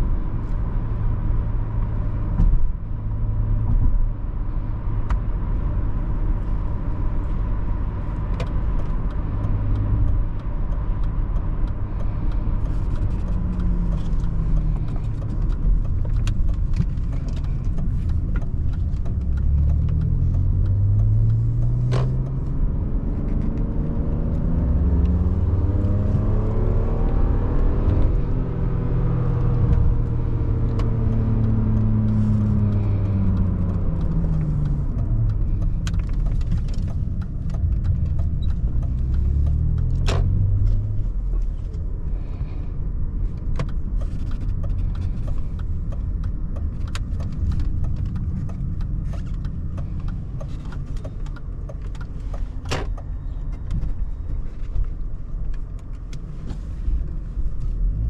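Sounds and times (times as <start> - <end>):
road and tyre noise: 0.0 - 58.0
car engine revving: 5.4 - 54.4.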